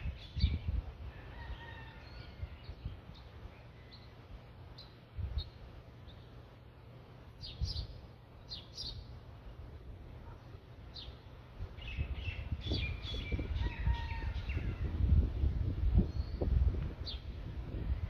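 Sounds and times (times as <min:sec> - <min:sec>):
birds chirping: 0:00.0 - 0:14.9.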